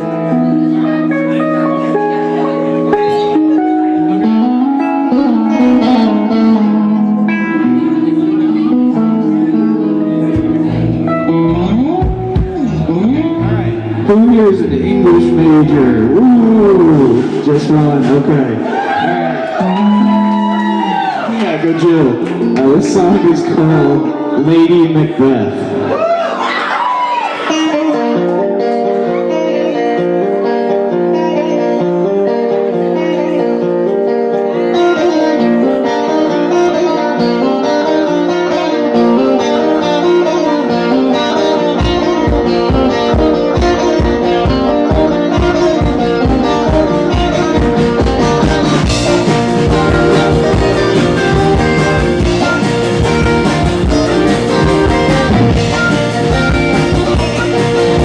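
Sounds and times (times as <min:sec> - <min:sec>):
bass guitar: 0:00.0 - 0:58.0
rock guitar: 0:00.0 - 0:58.0
drums: 0:10.0 - 0:21.5, 0:38.9 - 0:58.0.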